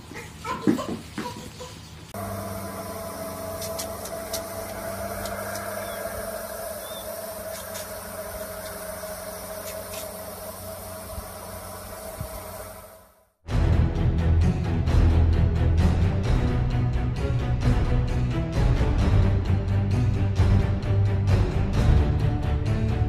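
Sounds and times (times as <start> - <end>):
sprinkler water hiss: 0.0 - 13.2
low hum: 2.1 - 23.0.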